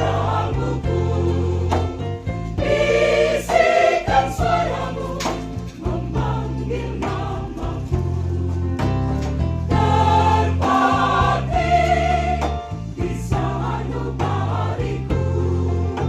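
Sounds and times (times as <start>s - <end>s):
choir singing a hymn: 0.0s - 8.9s, 9.7s - 16.0s
low bass: 4.2s - 16.0s.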